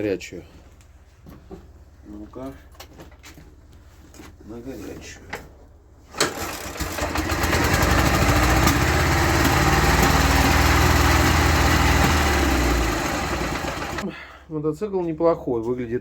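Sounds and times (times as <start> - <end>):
motorcycle engine starting and running: 6.1 - 14.0.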